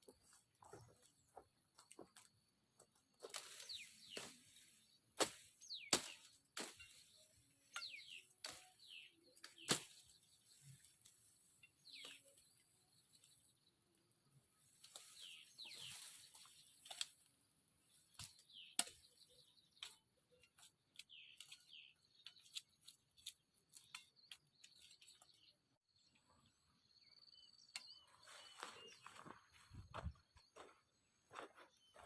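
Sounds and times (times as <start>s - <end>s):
faint bird chirps: 17.9s - 32.0s.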